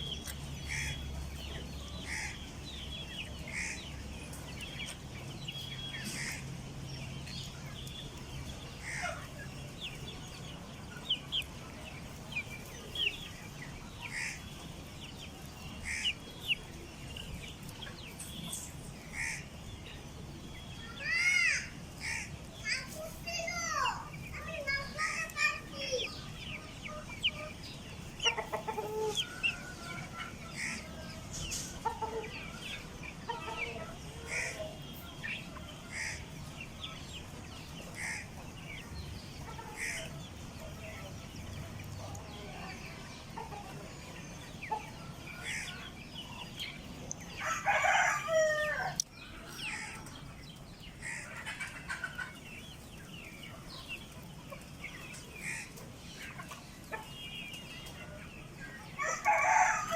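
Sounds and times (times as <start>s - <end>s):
chickens clucking and peeping: 0.0s - 59.9s
rooster crowing: 47.4s - 49.0s, 59.0s - 59.9s.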